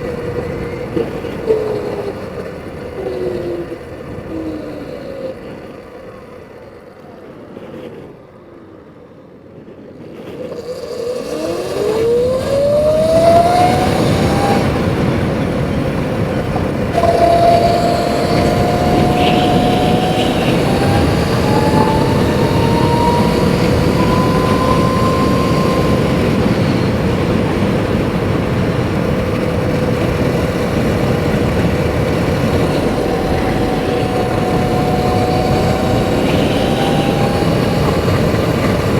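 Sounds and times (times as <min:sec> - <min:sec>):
wind and road noise: 0:00.0 - 0:38.9
electric motor whining: 0:10.4 - 0:38.9.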